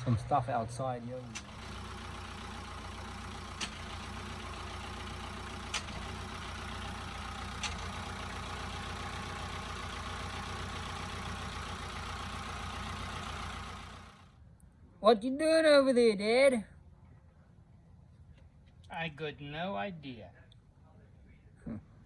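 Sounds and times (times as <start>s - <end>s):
motor hum: 1.1s - 14.3s.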